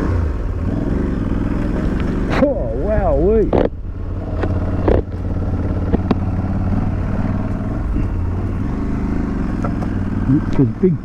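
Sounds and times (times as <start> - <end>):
motorcycle engine running: 0.0 - 11.0
sharp ticks: 3.4 - 7.7.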